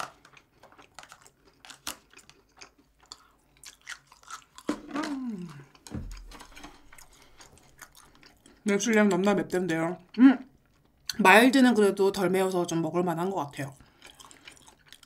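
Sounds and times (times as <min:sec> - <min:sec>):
chewing food: 0:00.0 - 0:11.2, 0:13.5 - 0:15.0
person humming: 0:04.9 - 0:05.7.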